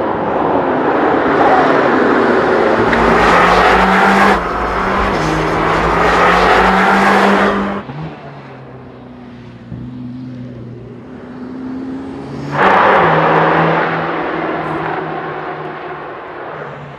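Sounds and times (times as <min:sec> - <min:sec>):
sports car engine running hard: 0:01.3 - 0:09.9.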